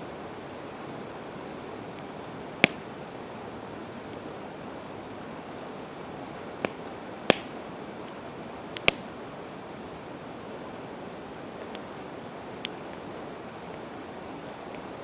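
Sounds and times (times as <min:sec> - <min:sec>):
steady rushing hiss: 0:00.0 - 0:15.0
campfire wood popping: 0:01.8 - 0:04.3, 0:05.1 - 0:09.4, 0:11.1 - 0:15.0.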